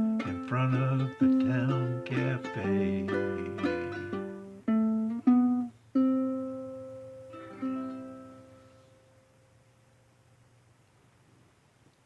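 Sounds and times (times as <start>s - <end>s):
ukulele chords strummed: 0.0s - 9.4s.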